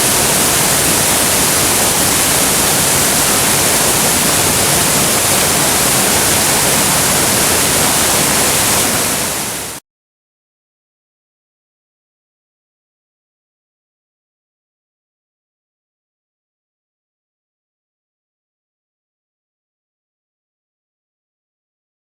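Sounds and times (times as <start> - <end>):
waterfall rushing: 0.0 - 9.8.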